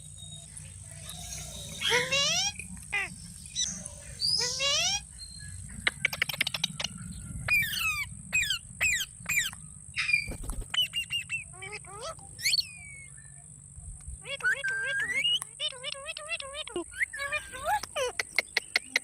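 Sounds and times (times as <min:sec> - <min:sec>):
parrot clicks and chirps: 0:05.9 - 0:06.9, 0:17.5 - 0:19.0.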